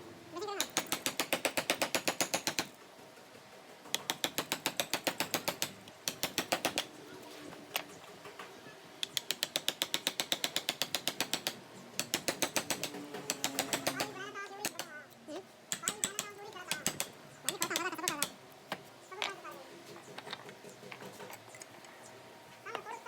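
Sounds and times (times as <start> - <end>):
rapid mechanical clicking: 0.6 - 2.8, 3.8 - 6.9, 7.7 - 14.9.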